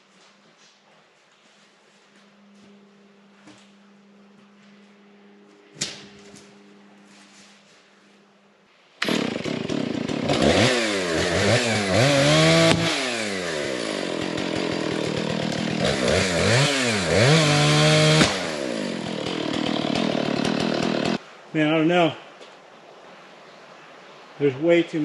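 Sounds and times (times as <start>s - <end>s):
chainsaw revving: 9.0s - 21.2s.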